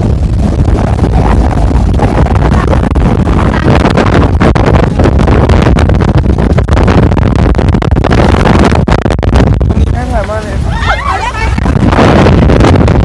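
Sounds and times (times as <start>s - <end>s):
motorboat engine running: 0.0s - 13.0s
wind buffeting microphone: 0.0s - 13.0s.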